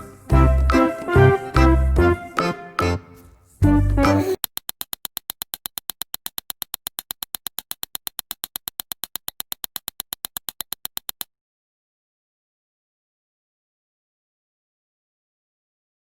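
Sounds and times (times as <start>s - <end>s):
rapid electronic clicks: 4.4s - 11.3s.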